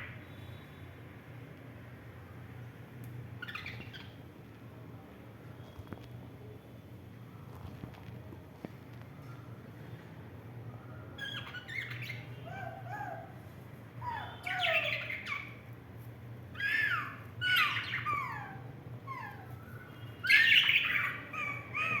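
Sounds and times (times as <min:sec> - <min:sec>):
budgerigars chirping and chattering: 0:03.4 - 0:04.2, 0:11.2 - 0:12.6, 0:14.0 - 0:15.6, 0:16.6 - 0:18.6, 0:20.2 - 0:22.0.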